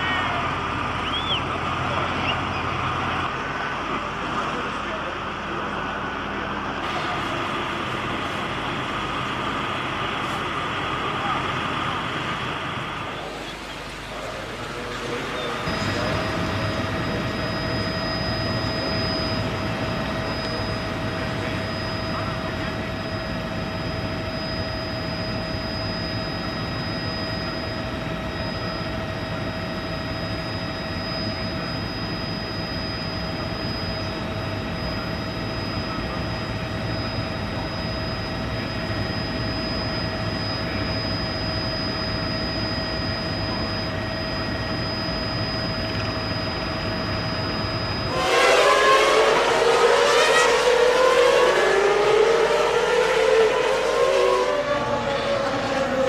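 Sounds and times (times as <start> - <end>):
noisy hum with high tones: 0.0 - 56.0
racing car engine at high revs: 48.4 - 56.0.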